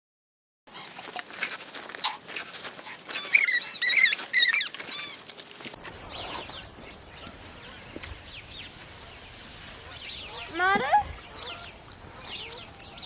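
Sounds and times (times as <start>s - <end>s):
rustling: 0.7s - 5.8s
squeaky animal calls: 3.1s - 5.3s.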